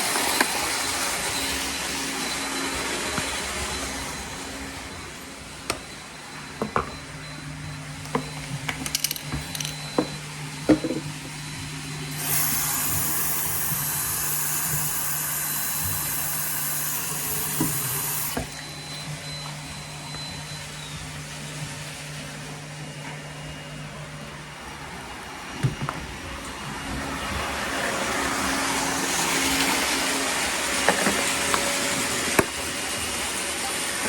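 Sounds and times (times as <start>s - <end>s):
robot vacuum motor hum: 11.4s - 19.4s
suction hiss: 12.2s - 18.4s.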